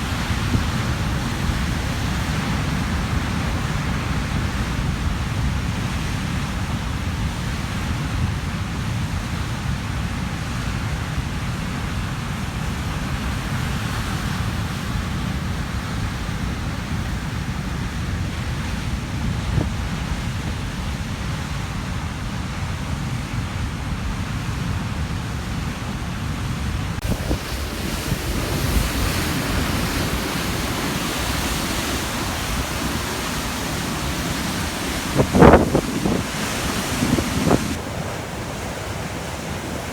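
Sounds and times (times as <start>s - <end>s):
wind buffeting microphone: 0.0s - 9.6s, 26.8s - 39.9s
waves crashing on rocky shore: 0.0s - 39.9s.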